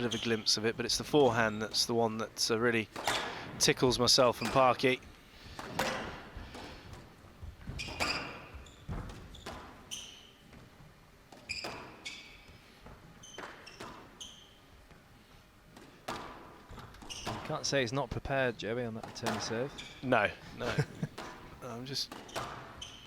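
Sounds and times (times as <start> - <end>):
shoes squeaking on court floor: 0.0 - 0.5, 4.2 - 15.0, 15.7 - 17.6, 19.0 - 20.1, 20.7 - 23.0
squash ball cracking off rackets: 5.5 - 7.1, 21.1 - 22.8.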